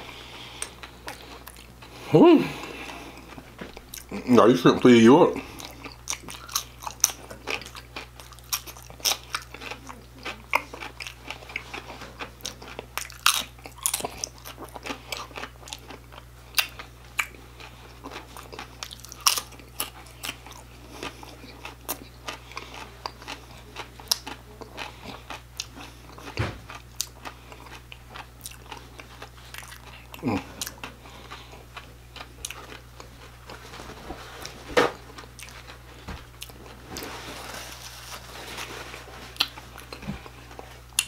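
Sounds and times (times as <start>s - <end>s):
chewing crunchy fried shrimp: 0.0s - 41.0s.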